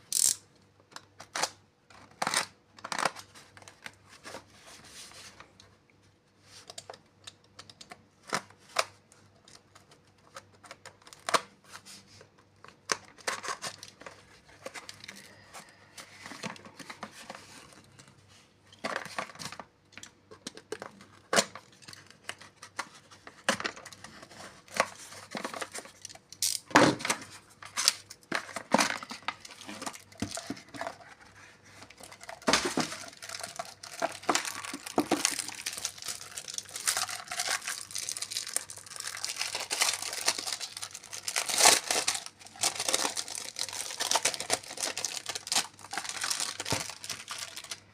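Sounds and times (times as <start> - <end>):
wrapping crinkling and tearing: 27.4 - 47.9.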